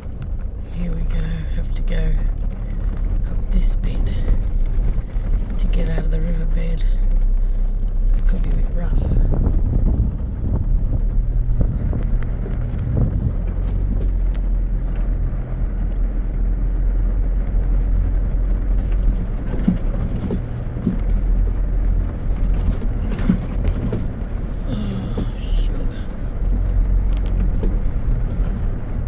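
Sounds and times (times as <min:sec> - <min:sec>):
car engine running: 0:00.0 - 0:29.0
knocks and rattles: 0:07.8 - 0:29.0.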